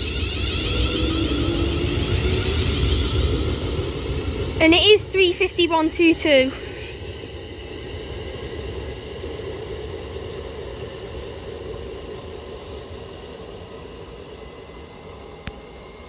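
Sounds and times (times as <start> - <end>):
electric train pulling away: 0.0 - 4.6
steady train running tones: 0.0 - 7.4.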